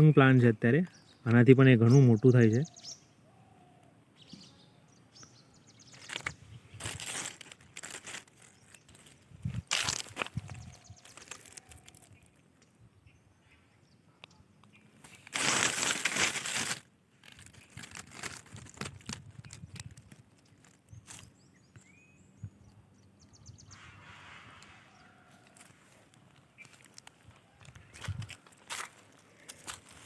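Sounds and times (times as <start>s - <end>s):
rustling on dry vegetation: 5.7s - 12.4s, 14.9s - 21.7s, 23.7s - 30.0s
faint bird chirps: 20.9s - 28.2s.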